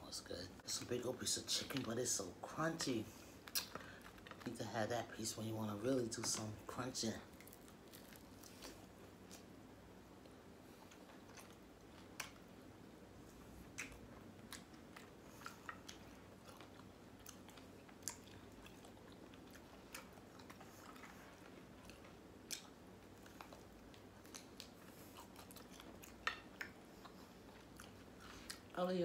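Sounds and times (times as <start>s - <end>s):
person chewing crunchy food: 7.2s - 28.8s.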